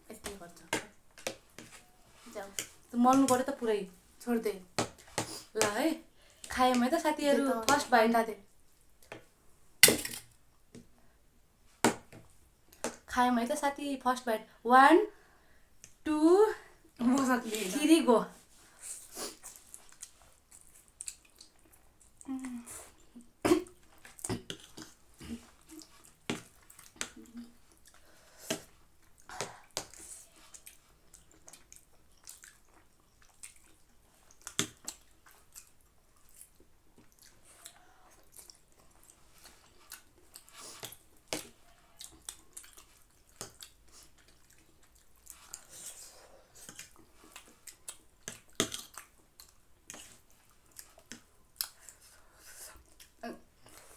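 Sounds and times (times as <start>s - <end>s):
chewing and slurping: 19.0s - 22.2s, 23.7s - 53.9s.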